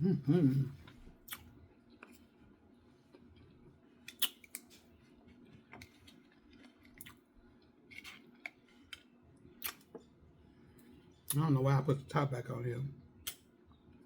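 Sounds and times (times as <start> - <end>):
eating sounds with sharp clicks: 4.1 - 4.7, 8.9 - 9.9, 13.2 - 13.5.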